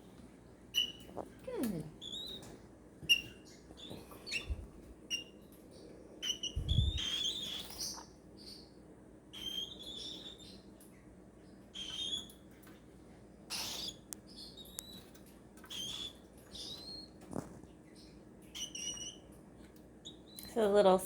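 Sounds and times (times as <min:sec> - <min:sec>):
chicks squeaky begging calls: 0:13.5 - 0:14.0.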